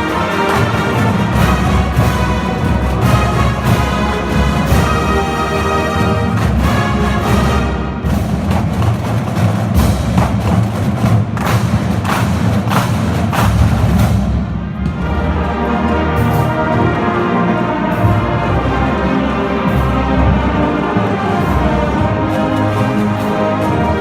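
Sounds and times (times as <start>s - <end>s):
sharp percussion hits: 0.0s - 15.3s
marching band playing: 0.0s - 24.0s.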